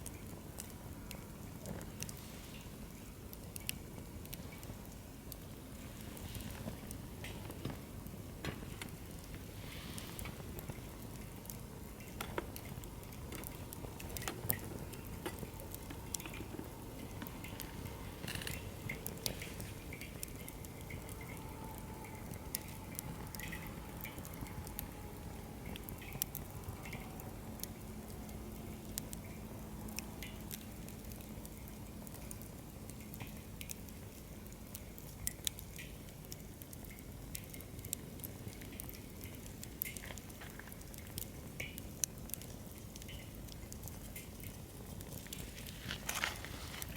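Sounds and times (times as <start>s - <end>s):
firewood crackling and popping: 0.0s - 46.9s
rush of flame: 5.7s - 11.7s, 44.9s - 46.9s.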